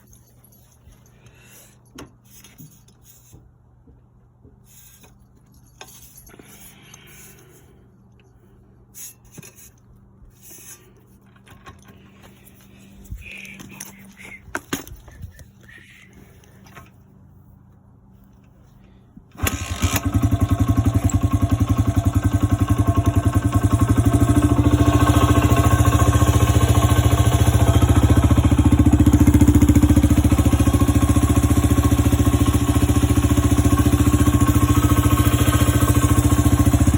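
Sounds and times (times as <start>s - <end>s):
motorcycle engine starting and running: 19.3s - 36.9s.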